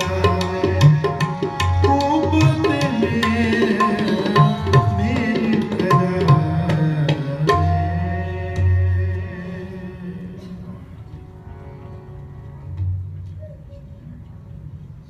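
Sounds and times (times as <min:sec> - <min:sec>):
harmonium chord: 0:00.0 - 0:06.8, 0:11.1 - 0:12.9
tabla strokes: 0:00.0 - 0:09.3.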